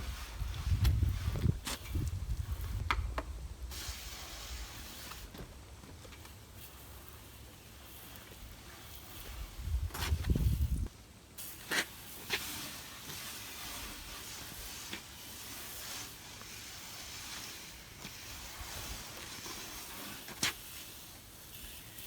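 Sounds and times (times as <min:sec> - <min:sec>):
hand sprayer hissing: 0:03.6 - 0:05.4, 0:06.2 - 0:22.0.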